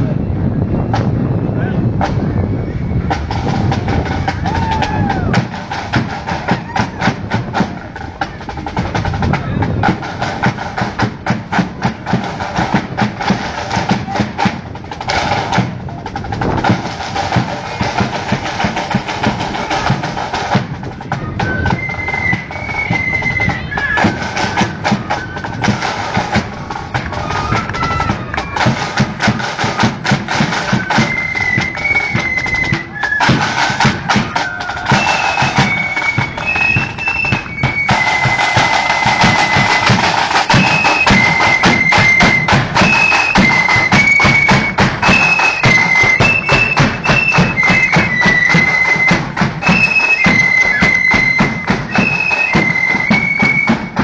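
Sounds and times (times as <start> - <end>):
bass drum beats: 0.6 - 21.7
rapid snare drumming: 3.1 - 54.0
shrill flute melody: 21.0 - 54.0.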